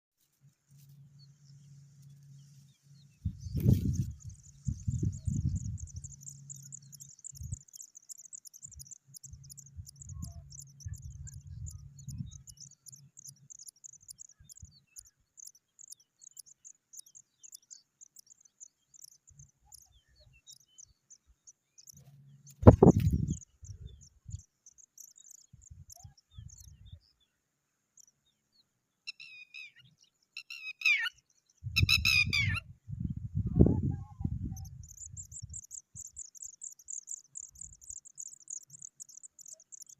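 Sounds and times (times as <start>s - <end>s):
bird chirping: 0.8s - 39.9s
low rumbling thumps: 22.6s - 23.4s.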